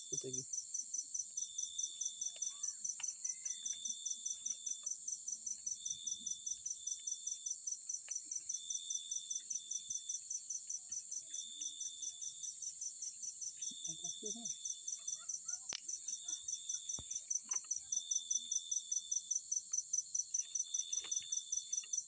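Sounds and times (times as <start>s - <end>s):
insects chirping: 0.0s - 22.0s
lower insect trill: 0.0s - 22.0s.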